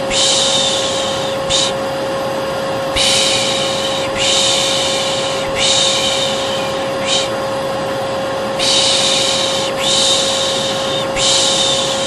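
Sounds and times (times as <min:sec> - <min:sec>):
person shushing: 0:00.0 - 0:01.8, 0:03.0 - 0:07.4, 0:08.6 - 0:12.0
hair dryer running: 0:00.0 - 0:12.0.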